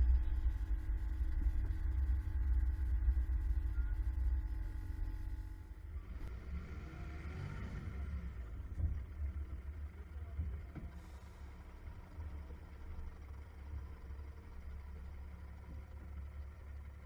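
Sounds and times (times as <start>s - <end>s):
steady low rumble: 0.0s - 6.3s
road vehicle passing by: 6.1s - 8.6s.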